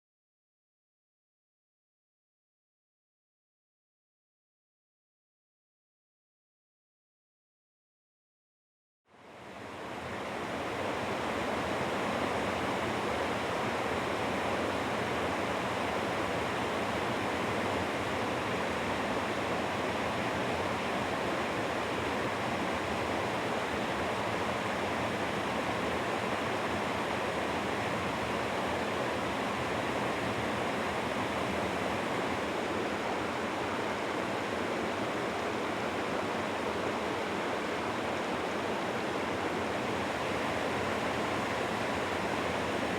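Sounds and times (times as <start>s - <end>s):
waterfall and rapids rushing: 9.6s - 42.9s.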